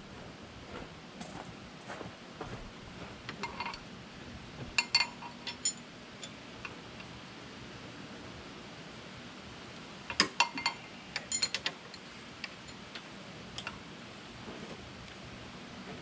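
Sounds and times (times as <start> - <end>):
wrench clinking on steel bolts: 4.8 - 6.4, 10.1 - 12.9.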